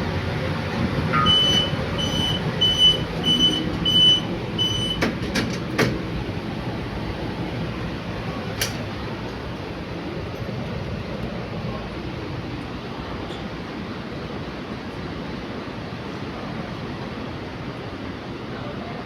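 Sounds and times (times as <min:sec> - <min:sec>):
lift car low hum: 0:00.0 - 0:19.0
short high electronic beeps: 0:01.1 - 0:05.0.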